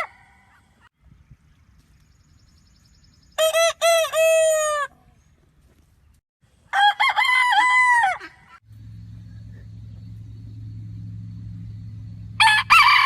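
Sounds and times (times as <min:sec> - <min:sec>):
rooster crowing: 0:06.7 - 0:08.3, 0:12.4 - 0:13.0.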